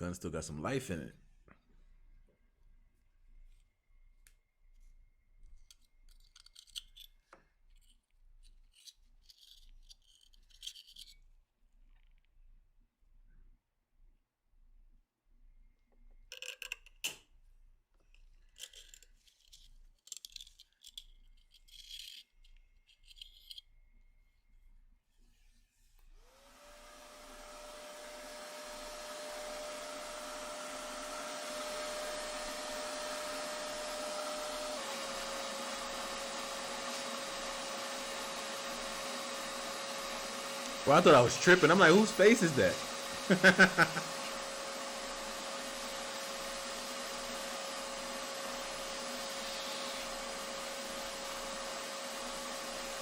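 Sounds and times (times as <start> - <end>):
metal parts clicking: 5.7 - 11.2, 18.5 - 23.6
power tool whining: 26.2 - 53.0.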